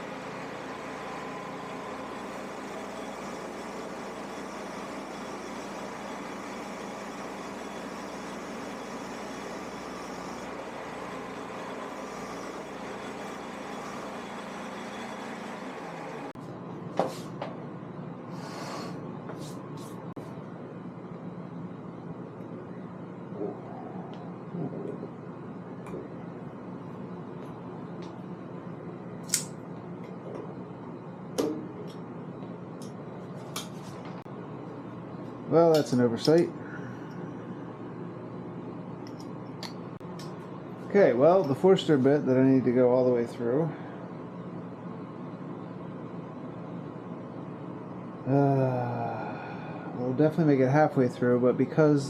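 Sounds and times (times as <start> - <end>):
drill motor whirring: 0.0 - 16.4
faint steady hum: 0.0 - 52.0.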